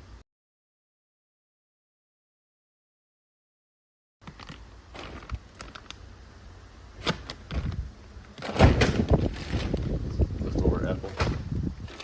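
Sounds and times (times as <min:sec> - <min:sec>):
bags rustling and clicking: 0:04.2 - 0:06.0, 0:07.0 - 0:12.0
microphone buffeting: 0:08.6 - 0:12.0.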